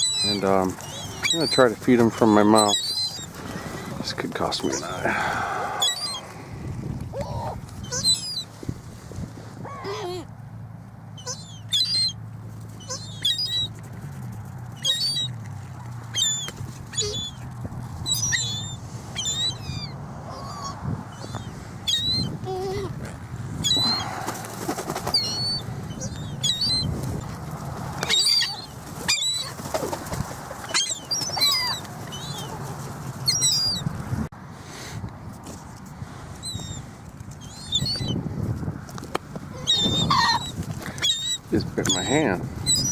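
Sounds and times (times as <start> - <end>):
gulls calling: 0.0 - 6.5, 7.1 - 8.5, 11.1 - 12.2, 12.8 - 13.8, 16.1 - 23.0, 23.6 - 27.0, 27.9 - 33.9, 39.4 - 42.9.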